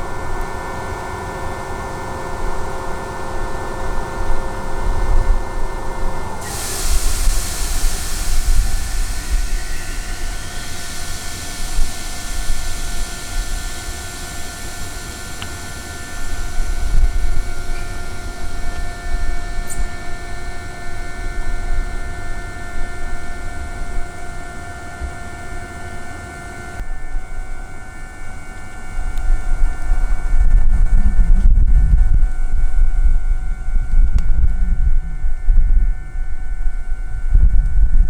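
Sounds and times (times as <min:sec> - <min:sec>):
electric train whine: 0:00.0 - 0:38.0
low rumble: 0:04.8 - 0:19.4
high hiss: 0:06.0 - 0:24.3.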